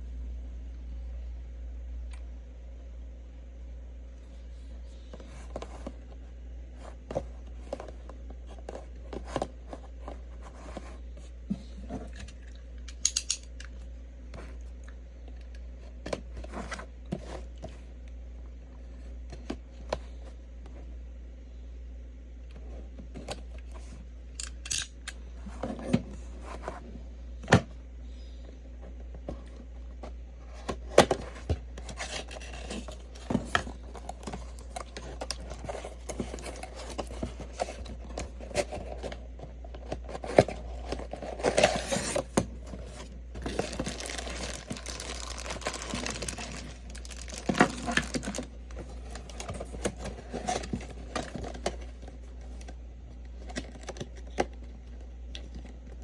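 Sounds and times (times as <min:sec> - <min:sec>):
low steady hum: 0:00.0 - 0:56.0
plastic packaging crinkling and tearing: 0:42.9 - 0:51.6.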